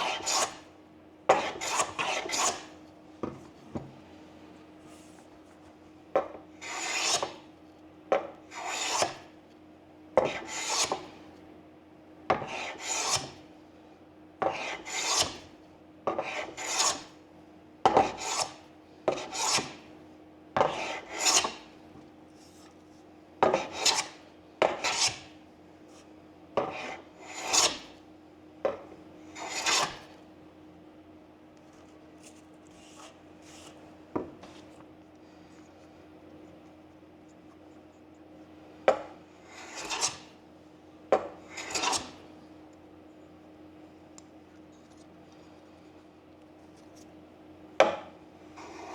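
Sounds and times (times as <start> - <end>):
hand plane scraping wood: 0.0 - 0.6, 1.3 - 2.7, 6.6 - 7.4, 8.5 - 9.2, 10.2 - 11.1, 12.4 - 13.4, 14.4 - 15.4, 16.2 - 17.1, 18.0 - 19.8, 20.6 - 21.6, 23.5 - 25.3, 26.6 - 27.8, 29.4 - 30.0, 39.4 - 40.3, 41.5 - 42.2, 48.6 - 48.9.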